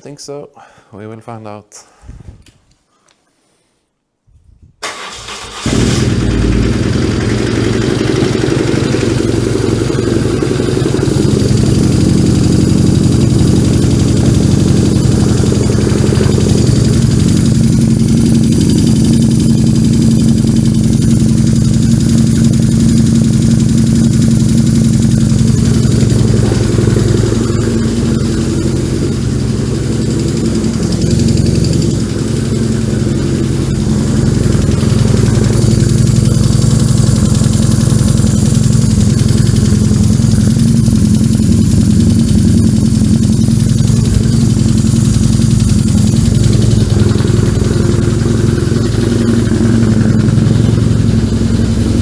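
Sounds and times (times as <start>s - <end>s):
motorcycle engine idling: 5.6s - 52.0s.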